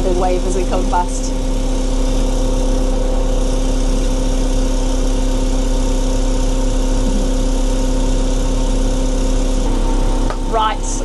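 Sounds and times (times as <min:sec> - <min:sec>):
diesel engine idling: 0:02.6 - 0:09.6.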